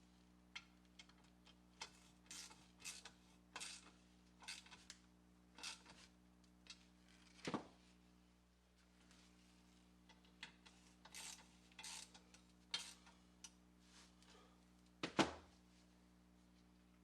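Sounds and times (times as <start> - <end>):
small metal parts clicking: 10.1 - 13.0.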